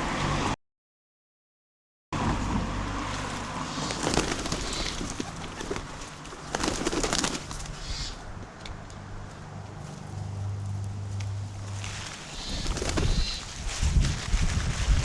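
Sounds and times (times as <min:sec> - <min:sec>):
pigeons cooing: 0:03.7 - 0:08.2, 0:12.2 - 0:13.5.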